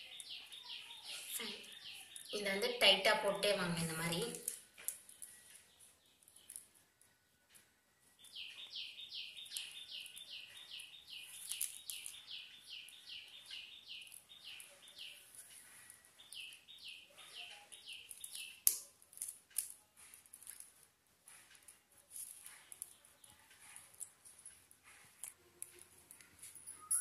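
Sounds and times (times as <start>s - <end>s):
plastic wire rustling and clicking: 4.0s - 16.6s, 17.2s - 27.0s.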